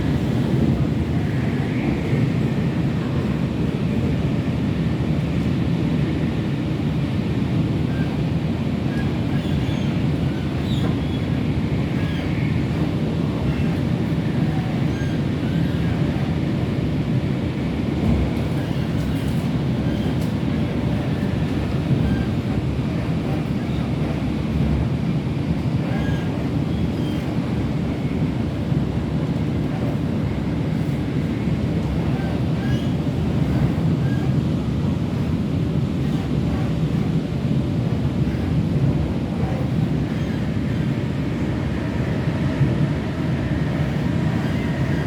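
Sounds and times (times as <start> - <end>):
train rumbling: 0.0 - 45.0.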